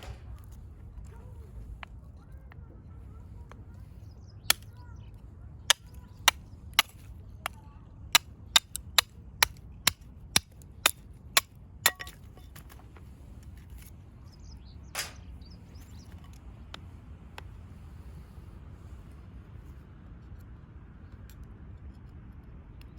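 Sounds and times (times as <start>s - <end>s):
axe chopping firewood: 4.4s - 4.7s, 5.7s - 12.6s.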